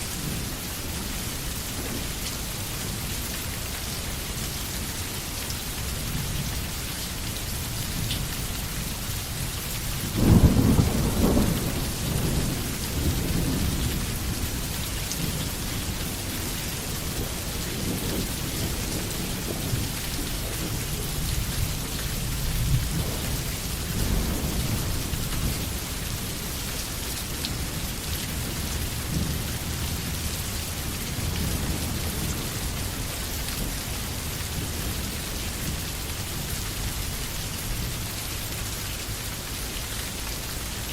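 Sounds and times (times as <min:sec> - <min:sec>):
steady rain falling: 0:00.0 - 0:40.9
thunder rumbling: 0:10.1 - 0:26.5.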